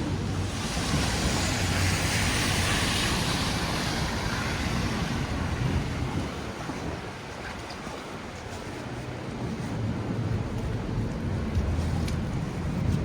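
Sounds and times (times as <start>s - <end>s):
low rumble of traffic: 0.0s - 13.0s
vehicle tyre hiss passing: 0.3s - 6.0s.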